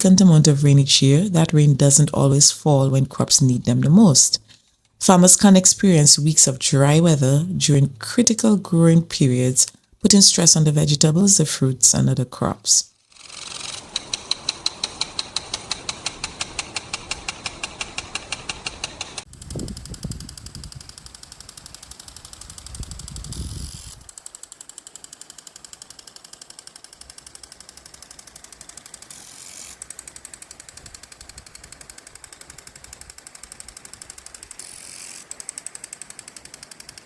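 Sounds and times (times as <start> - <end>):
rapid mechanical ticking: 13.3 - 23.0, 24.0 - 37.0.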